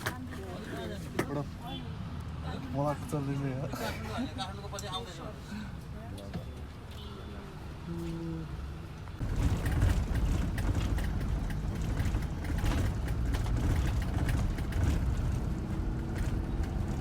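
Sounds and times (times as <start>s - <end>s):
bus engine and road rumble: 0.0s - 17.0s
rattles and knocks: 9.2s - 17.0s.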